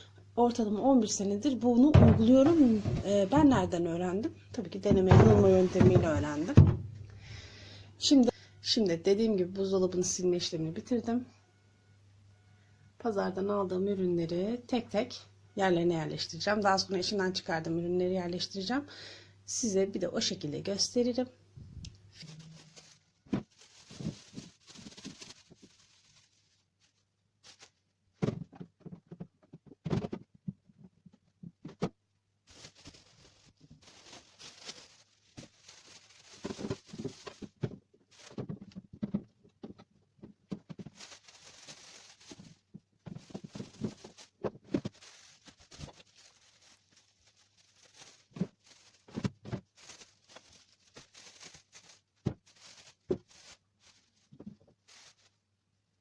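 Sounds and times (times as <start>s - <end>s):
plastic bags rustling: 1.0s - 7.1s, 22.1s - 27.9s, 32.4s - 39.8s, 40.5s - 55.5s
items knocking on fridge shelves: 1.8s - 3.8s, 4.8s - 7.0s, 28.2s - 32.0s.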